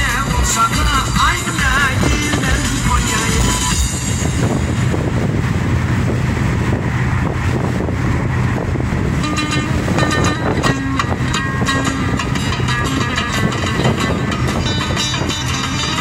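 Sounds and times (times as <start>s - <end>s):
car stereo music: 0.0s - 5.2s, 9.2s - 16.0s
car road and engine noise: 0.0s - 16.0s.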